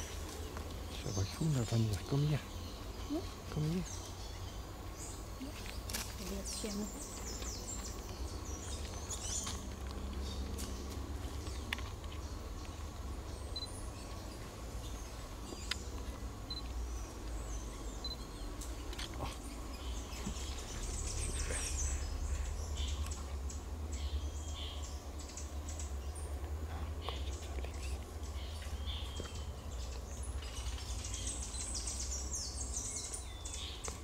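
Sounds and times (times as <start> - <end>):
small birds chirping: 0.0 - 34.0
low rumble: 6.6 - 31.6.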